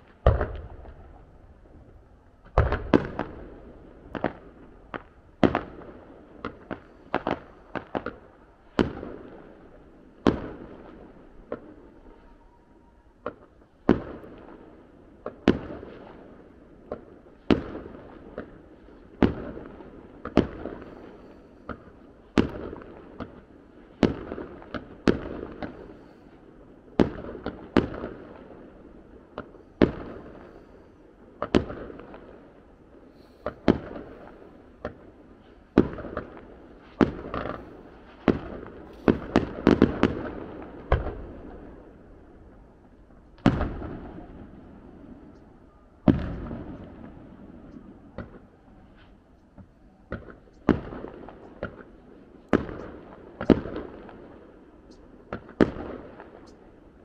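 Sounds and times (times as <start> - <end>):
fireworks exploding: 0.0 - 12.2, 13.2 - 45.4, 46.0 - 57.0.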